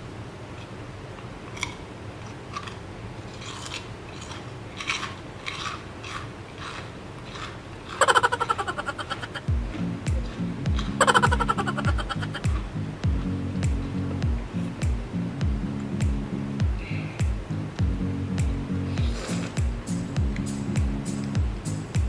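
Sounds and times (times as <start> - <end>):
crunching crisp snack: 1.5 - 9.4
loud music with bass slides: 9.5 - 22.0.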